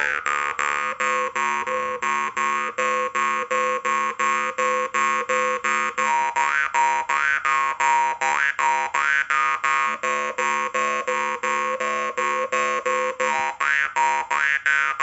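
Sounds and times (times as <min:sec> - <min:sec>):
jaw harp plucked over buzzing drone: 0:00.0 - 0:07.4.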